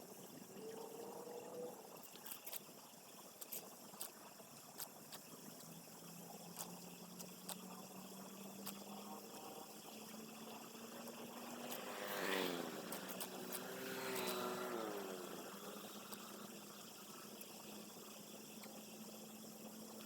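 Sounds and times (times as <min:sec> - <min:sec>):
engine passing by: 0:10.6 - 0:16.5.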